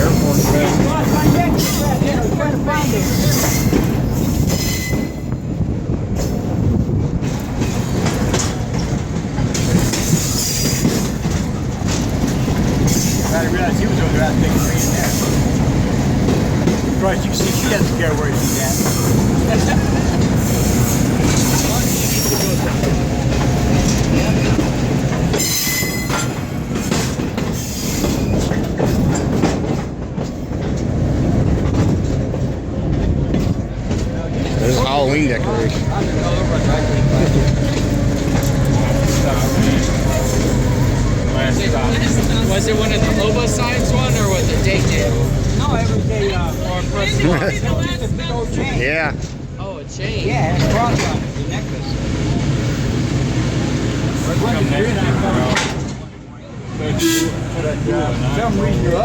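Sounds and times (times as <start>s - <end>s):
train wheels rumbling on rail: 0.0s - 59.0s
high wheel squeal: 2.8s - 5.4s, 10.0s - 11.1s, 20.4s - 22.9s, 25.3s - 26.7s, 27.5s - 28.5s.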